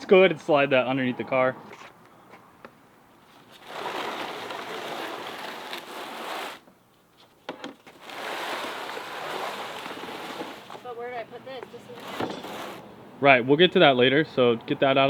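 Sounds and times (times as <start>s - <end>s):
cardboard scraping across floor: 3.3s - 6.7s, 7.9s - 10.9s, 11.7s - 12.8s.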